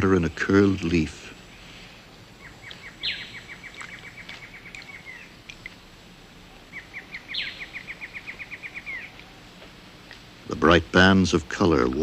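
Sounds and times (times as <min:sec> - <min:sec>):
forest ambience: 0:00.0 - 0:12.0
bird singing rapid trill: 0:02.4 - 0:05.4, 0:06.7 - 0:09.2.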